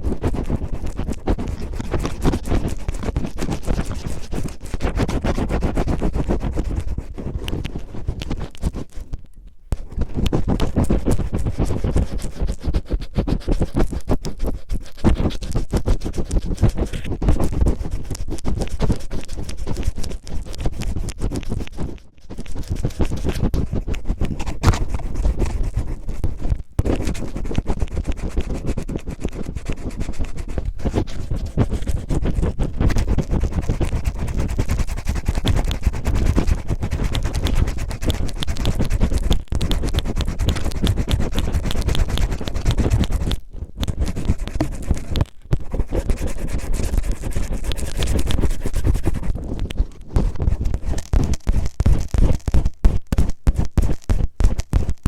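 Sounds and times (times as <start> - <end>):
cellophane crinkling against microphone: 13.7 - 55.0.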